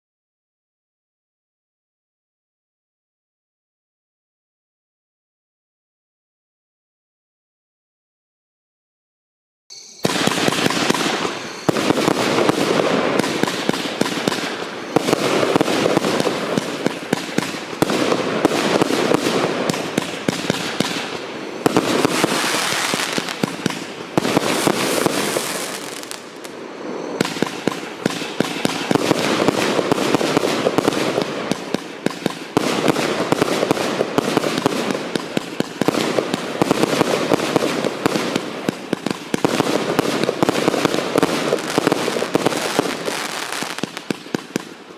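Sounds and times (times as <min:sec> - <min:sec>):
firework launches and bursts: 0:10.0 - 0:44.9.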